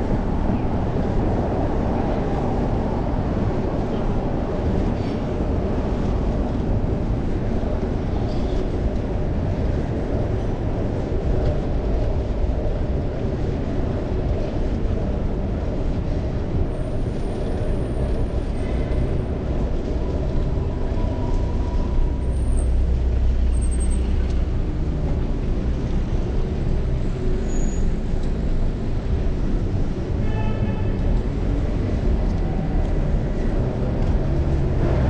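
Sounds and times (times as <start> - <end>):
wind rushing on microphone: 0.0 - 22.4
city road traffic hum: 0.0 - 35.0.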